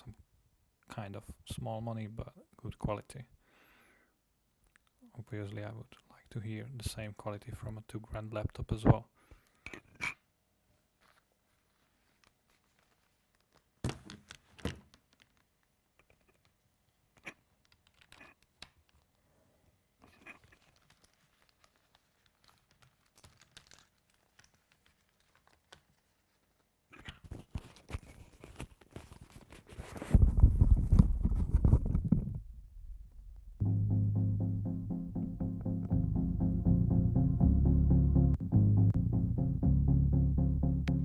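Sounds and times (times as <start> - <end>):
handling clicks and scratches: 11.0 - 19.2, 20.0 - 32.4
rubbing and low rumble: 30.0 - 33.6.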